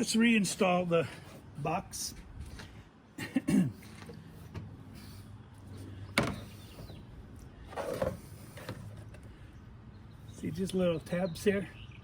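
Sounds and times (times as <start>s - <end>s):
plastic scraping: 7.6s - 9.2s.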